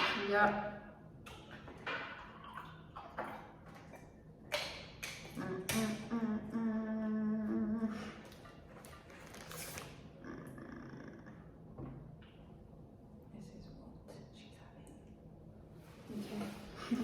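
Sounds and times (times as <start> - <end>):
woman humming: 5.4 - 8.4, 10.1 - 11.6.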